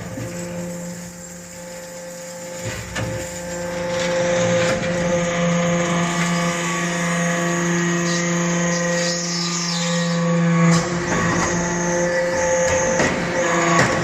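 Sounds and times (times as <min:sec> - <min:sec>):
hydraulic press hum and whine: 0:00.0 - 0:14.0.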